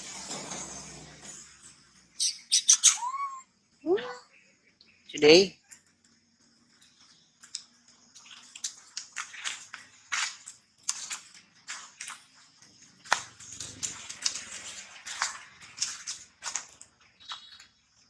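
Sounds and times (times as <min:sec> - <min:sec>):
irregular crackling and snapping: 0:07.4 - 0:12.2, 0:13.0 - 0:17.7.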